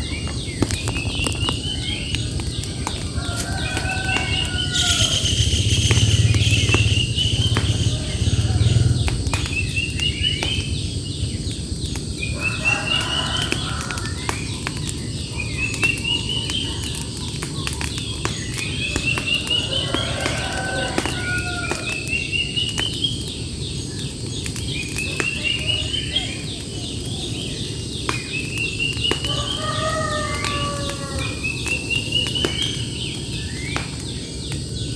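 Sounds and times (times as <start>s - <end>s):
lower bird calls: 0.0s - 34.9s
songbird rising notes: 3.8s - 10.9s
low background rumble: 4.2s - 12.2s.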